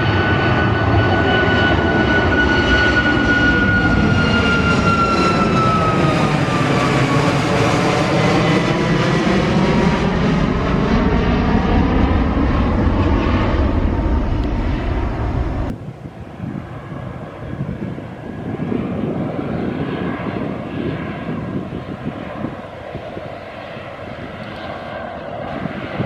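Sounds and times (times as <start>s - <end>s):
airliner engines rumbling: 0.0s - 26.0s
engine whine: 0.0s - 26.0s.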